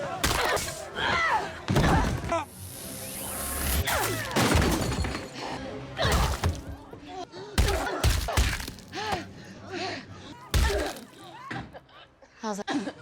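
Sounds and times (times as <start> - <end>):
glass shattering: 3.9 - 6.8, 7.6 - 9.2, 10.5 - 11.2
heavy thuds and impacts: 7.6 - 9.3, 10.6 - 11.1.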